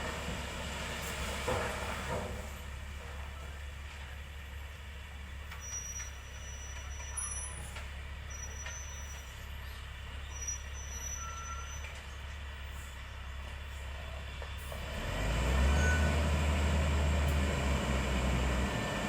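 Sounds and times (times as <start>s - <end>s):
heavy machine engine rumbling: 0.0s - 19.0s.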